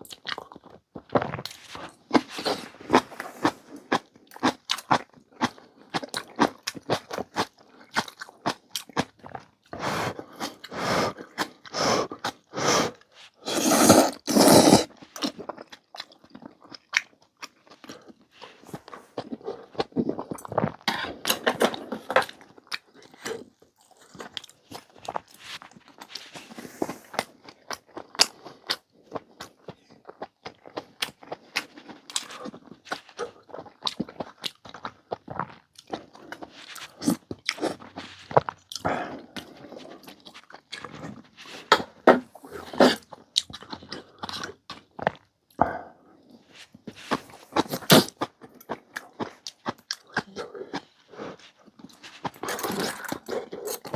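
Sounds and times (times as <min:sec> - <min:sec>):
wet chewing and smacking: 0:00.0 - 0:12.6, 0:27.1 - 0:42.0, 0:42.6 - 0:45.6, 0:46.3 - 0:53.9
slurping noodle soup: 0:01.1 - 0:04.0, 0:09.8 - 0:15.6, 0:36.0 - 0:44.6, 0:46.4 - 0:48.3, 0:50.2 - 0:53.9.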